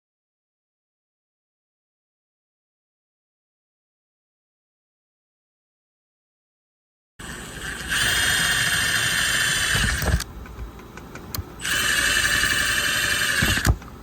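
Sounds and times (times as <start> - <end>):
power drill whining: 7.2 - 10.2, 11.6 - 13.8.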